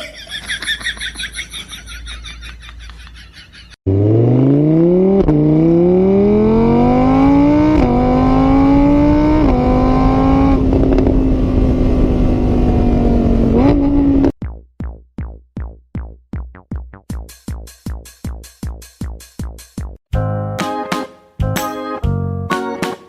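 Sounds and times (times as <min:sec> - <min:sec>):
engine accelerating through gears: 0:03.8 - 0:14.3.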